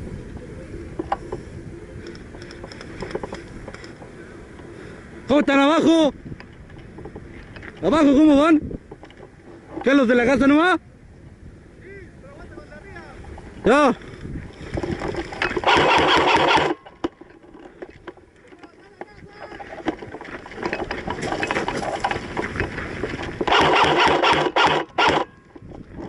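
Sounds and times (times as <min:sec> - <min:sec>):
airsoft gun firing bursts: 0:15.6 - 0:16.8, 0:23.5 - 0:25.3.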